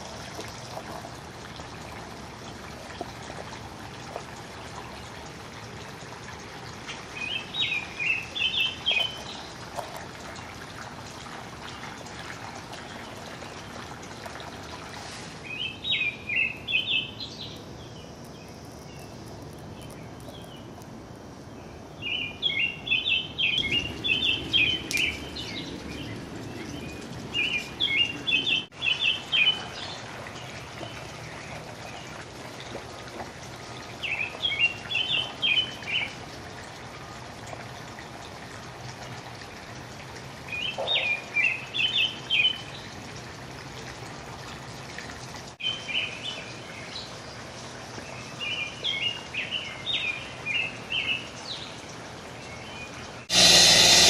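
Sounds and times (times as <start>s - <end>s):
songbird singing: 6.9s - 9.6s, 15.4s - 32.1s, 34.0s - 36.2s, 40.5s - 42.9s, 45.6s - 51.8s.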